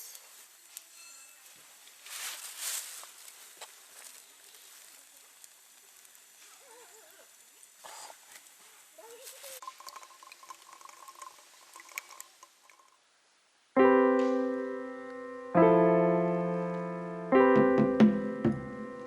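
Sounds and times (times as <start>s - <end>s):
sustained piano chord: 13.8s - 19.0s.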